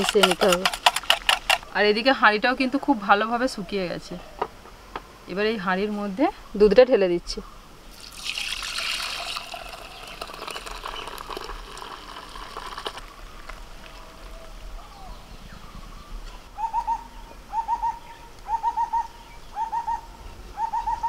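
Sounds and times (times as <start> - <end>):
milk pouring and splashing: 7.9 - 14.0
bird calling: 8.5 - 11.5, 13.0 - 21.0.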